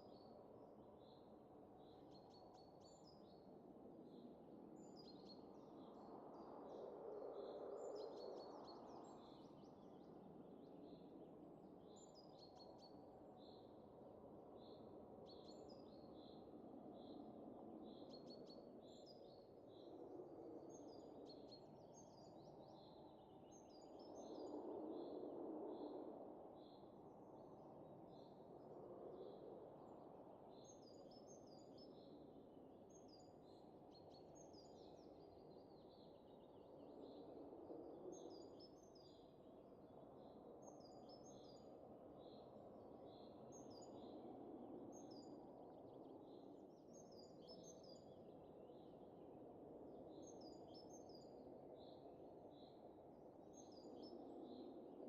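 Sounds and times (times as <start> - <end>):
faint wind gusts: 18.6 - 55.0.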